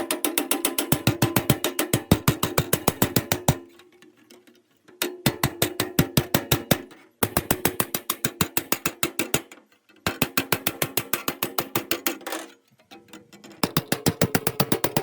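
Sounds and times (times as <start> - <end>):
rapid hammer blows on metal: 0.0 - 3.7, 5.2 - 9.5, 10.1 - 12.2, 13.6 - 15.0.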